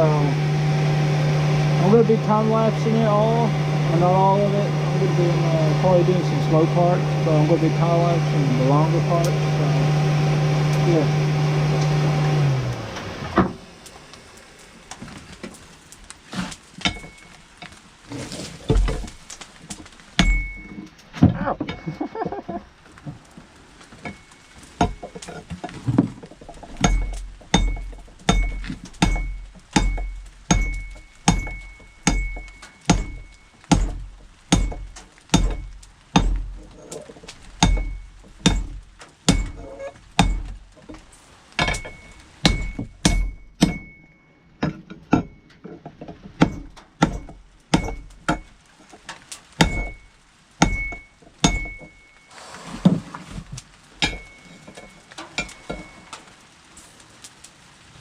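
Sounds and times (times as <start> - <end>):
hammer striking steel on anvil: 20.2 - 20.8, 26.8 - 36.4, 37.6 - 40.5, 41.6 - 45.5, 46.4 - 48.5, 50.6 - 52.0, 54.0 - 56.0.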